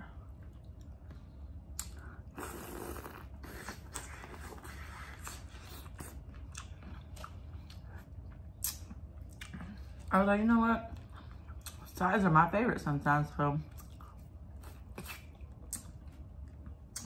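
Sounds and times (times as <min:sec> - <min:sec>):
wet chewing smacks: 0:00.4 - 0:10.1.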